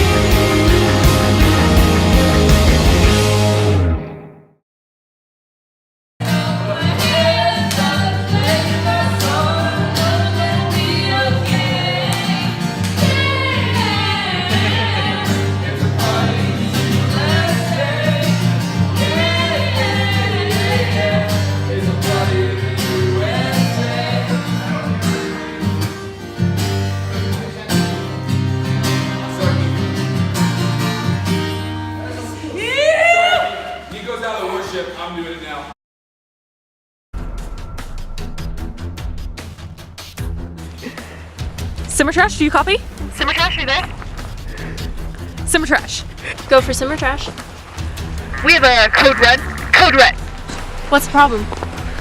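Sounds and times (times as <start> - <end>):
guitar: 0.0 - 4.5, 6.2 - 33.4, 40.4 - 52.0
steady beat: 42.2 - 52.0.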